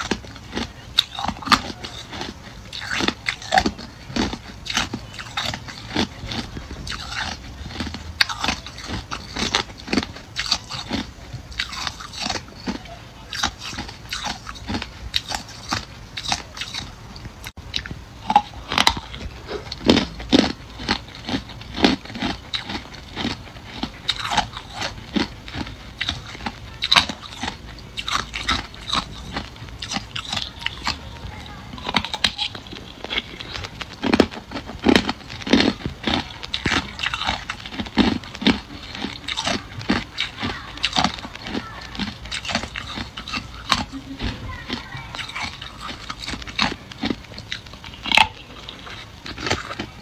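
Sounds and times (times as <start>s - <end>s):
ice crunching: 17.7s - 50.0s.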